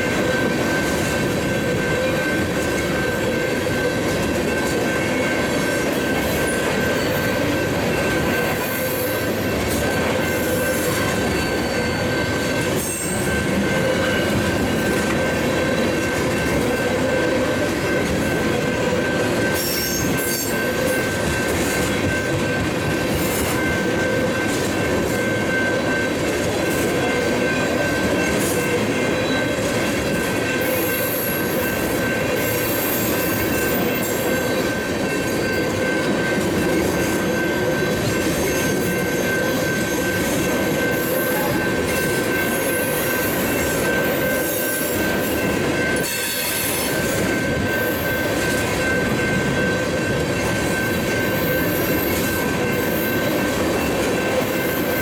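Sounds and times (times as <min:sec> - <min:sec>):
steel wheels clattering on rail: 0:00.0 - 0:55.0
high wheel squeal: 0:04.6 - 0:16.0, 0:18.2 - 0:21.0, 0:30.4 - 0:36.0.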